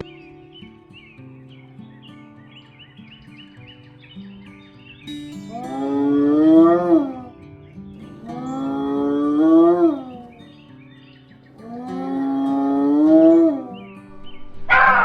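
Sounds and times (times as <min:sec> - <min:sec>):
cow mooing: 0:05.5 - 0:07.3, 0:08.3 - 0:10.3, 0:11.6 - 0:13.8
short harsh animal call: 0:14.6 - 0:15.0.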